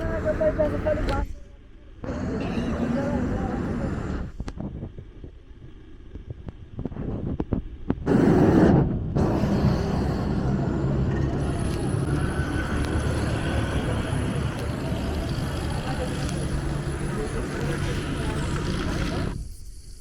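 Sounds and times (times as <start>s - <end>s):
vehicle engine running: 0.0s - 1.4s, 2.0s - 19.4s
urban traffic: 0.0s - 4.6s, 8.0s - 19.4s
loud rush of noise: 2.0s - 4.4s, 7.9s - 19.4s.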